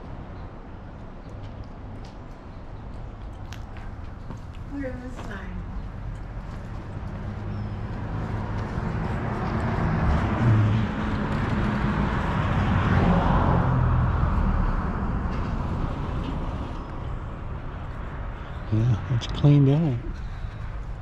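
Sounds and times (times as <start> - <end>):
vehicle driving past: 5.6 - 20.2.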